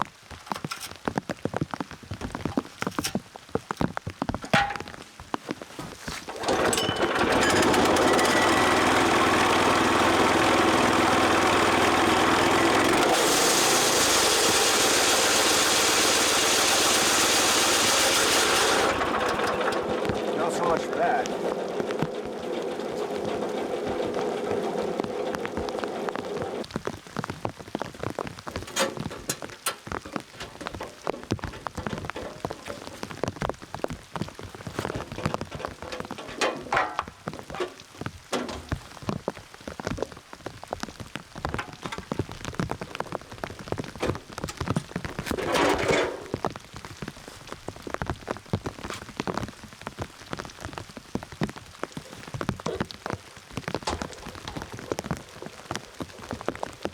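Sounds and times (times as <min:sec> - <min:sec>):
sawmill engine running: 0:06.3 - 0:26.7, 0:28.6 - 0:33.1, 0:34.7 - 0:39.0, 0:53.9 - 0:56.1
rain dripping ticks: 0:19.0 - 0:36.3.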